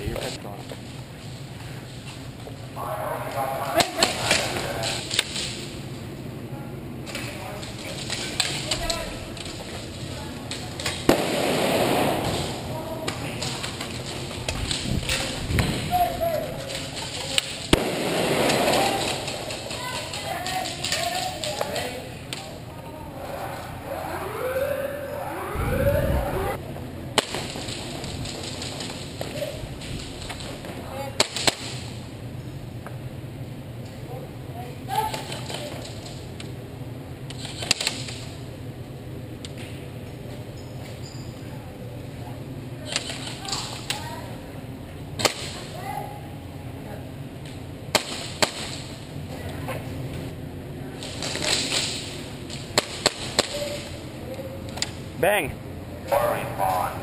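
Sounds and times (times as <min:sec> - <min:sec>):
sharp crack: 0:10.5 - 0:16.0, 0:16.7 - 0:22.5, 0:45.2 - 0:45.6, 0:47.9 - 0:48.9, 0:51.0 - 0:53.8
pistol shots: 0:11.1 - 0:12.4, 0:17.7 - 0:19.2
low rumble: 0:23.1 - 0:26.7
wailing siren: 0:23.3 - 0:26.6.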